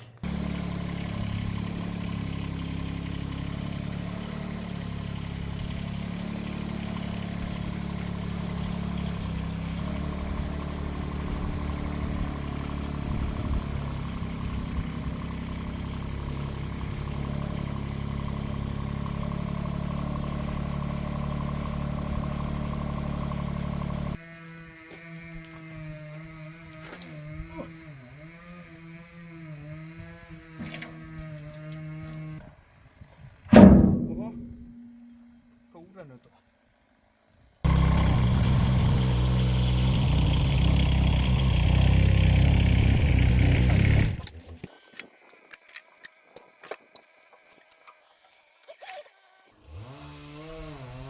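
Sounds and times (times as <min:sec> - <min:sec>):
loader engine running: 0:00.0 - 0:24.2, 0:33.5 - 0:35.4, 0:37.6 - 0:44.7.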